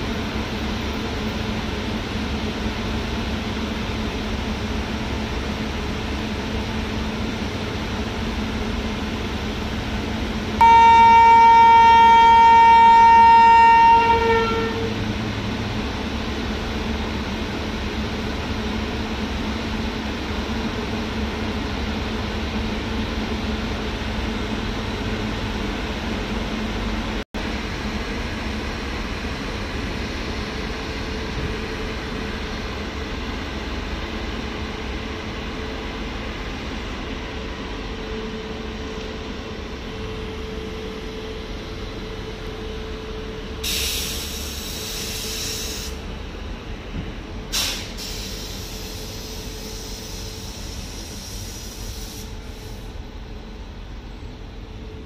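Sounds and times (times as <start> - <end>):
train rumbling past: 0.0 - 55.0
air hiss: 43.6 - 46.1, 47.5 - 53.0.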